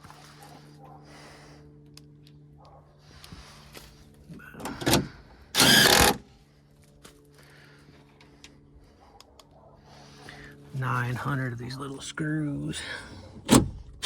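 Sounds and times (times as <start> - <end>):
small electric motor whirring: 5.6 - 6.3.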